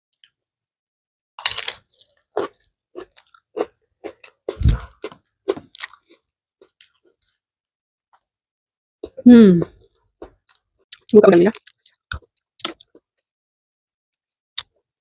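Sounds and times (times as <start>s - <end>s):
person chewing crunchy food: 1.4s - 7.4s, 9.0s - 13.1s.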